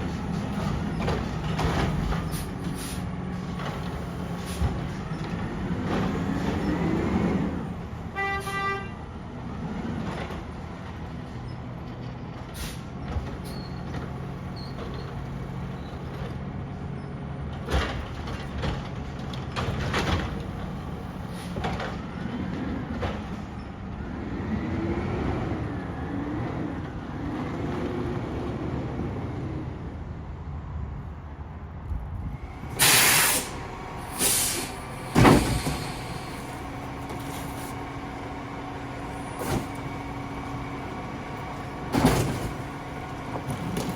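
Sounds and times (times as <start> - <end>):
air brakes hissing: 2.1 - 3.2, 3.8 - 5.0, 12.5 - 16.1, 20.8 - 21.6, 32.4 - 40.5
garbage truck engine revving: 32.4 - 43.9.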